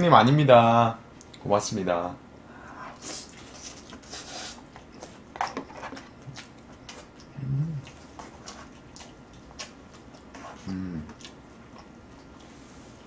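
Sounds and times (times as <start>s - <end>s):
person chewing and slurping noodles: 6.2s - 13.0s
person humming: 7.3s - 7.9s, 10.6s - 11.2s.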